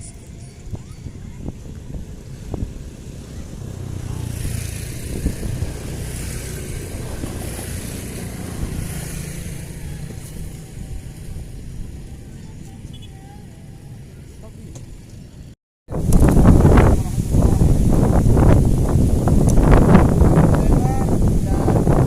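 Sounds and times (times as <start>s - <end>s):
vehicle engine passing by: 1.3s - 12.8s.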